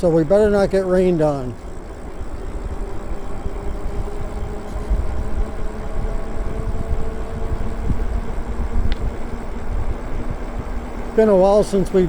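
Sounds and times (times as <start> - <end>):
electric motor hum: 0.0 - 12.0
wind rumbling on microphone: 0.0 - 12.0.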